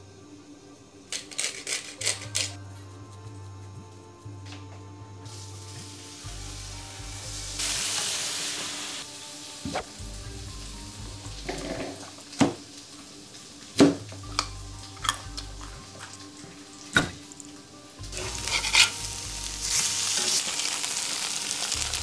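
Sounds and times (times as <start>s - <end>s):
light background music: 0.0s - 22.0s
tofu sizzling in a skillet: 5.3s - 22.0s.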